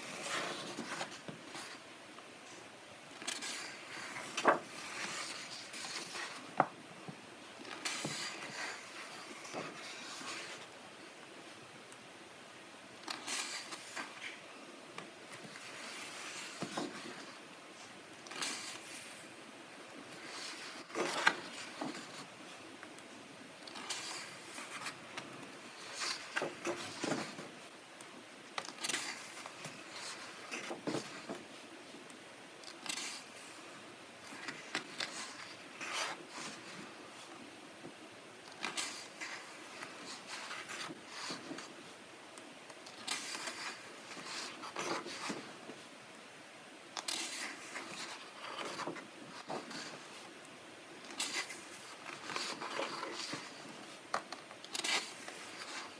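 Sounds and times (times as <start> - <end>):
book pages turning: 0.0 - 1.8, 2.5 - 6.8, 7.6 - 10.8, 13.0 - 14.4, 15.0 - 17.4, 18.2 - 19.3, 20.1 - 23.0, 23.6 - 27.8, 28.5 - 33.6, 34.2 - 37.4, 38.4 - 42.0, 42.7 - 46.0, 47.0 - 50.3, 51.0 - 55.9.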